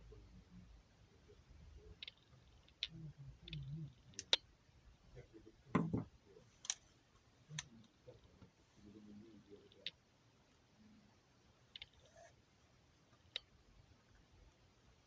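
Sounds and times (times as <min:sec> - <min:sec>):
small hard parts clicking: 0:01.9 - 0:04.4, 0:11.8 - 0:12.3.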